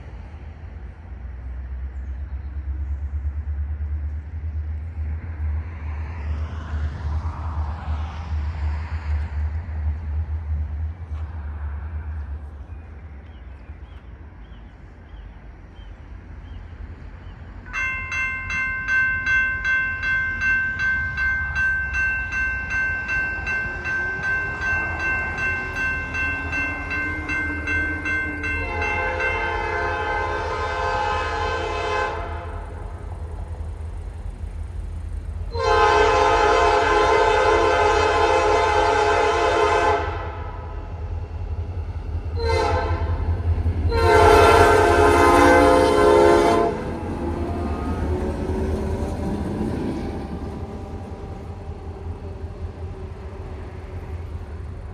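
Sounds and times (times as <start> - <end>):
train rumbling: 0.0 - 54.9
railroad crossing bell ringing: 17.7 - 32.0
locomotive horn blasts: 26.5 - 32.8, 35.5 - 40.7, 42.4 - 43.3, 43.9 - 47.0.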